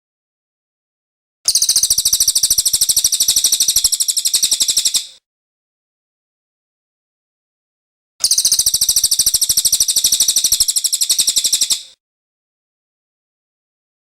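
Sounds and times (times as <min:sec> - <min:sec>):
bird trilling: 0:01.5 - 0:05.2, 0:08.2 - 0:12.0.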